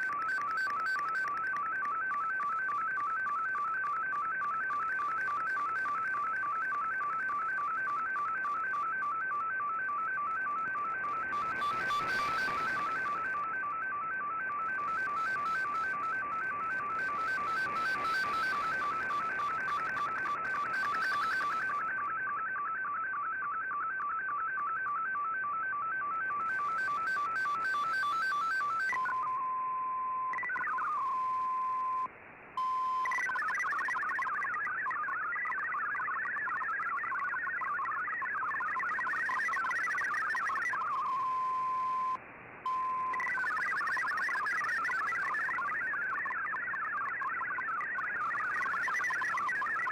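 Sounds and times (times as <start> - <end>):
digital data tones: 0.0 - 22.4, 25.8 - 29.4, 30.2 - 49.9.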